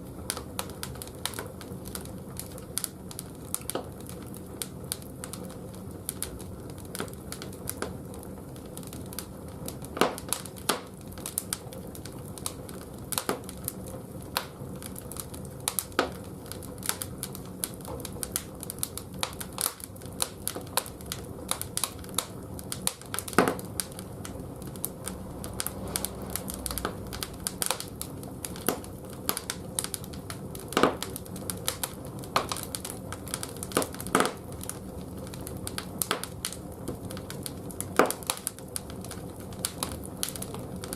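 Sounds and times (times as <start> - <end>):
firewood crackling and popping: 0.0 - 40.9
steady low hum: 22.1 - 29.9.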